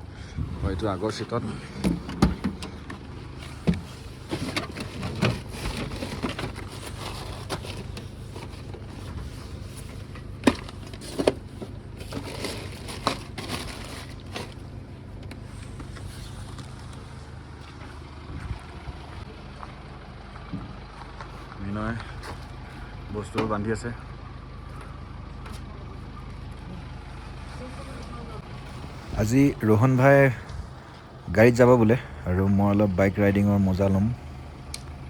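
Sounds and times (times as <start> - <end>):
car engine idling: 0.0 - 35.0
knocks and clatter of handling: 1.6 - 14.6.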